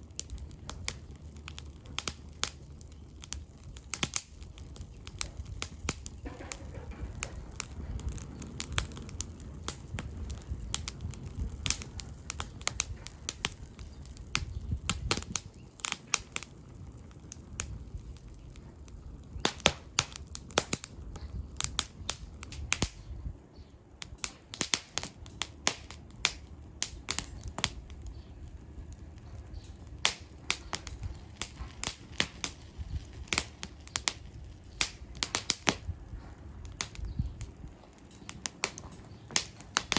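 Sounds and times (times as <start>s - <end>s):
firewood crackling and popping: 0.0s - 39.9s
low rumble: 26.0s - 37.9s.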